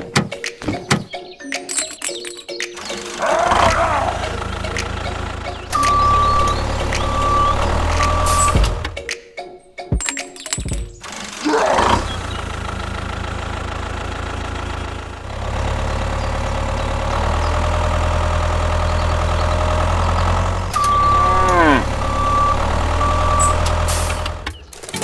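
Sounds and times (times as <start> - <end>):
miniature tractor engine hum: 2.8 - 8.9, 11.0 - 25.0
short high beeps: 5.7 - 8.7, 20.8 - 24.3
long call falling in pitch: 20.8 - 23.7.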